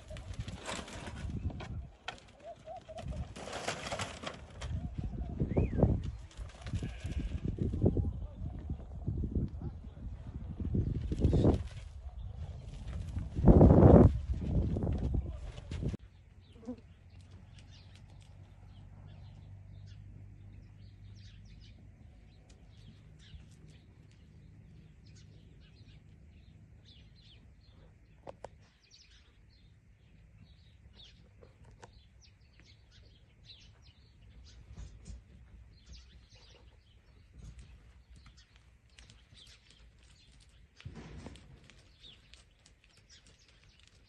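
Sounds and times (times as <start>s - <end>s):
small birds chirping: 15.9s - 44.0s.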